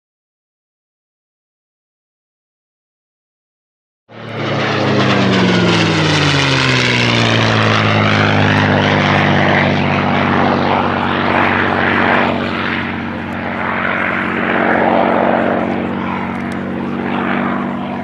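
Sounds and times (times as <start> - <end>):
propeller plane passing: 4.1 - 18.0.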